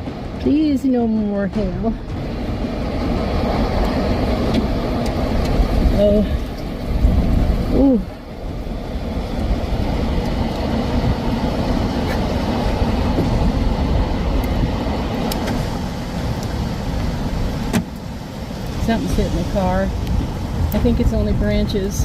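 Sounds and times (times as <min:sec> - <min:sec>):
storm wind buffeting vehicle: 0:00.0 - 0:22.0.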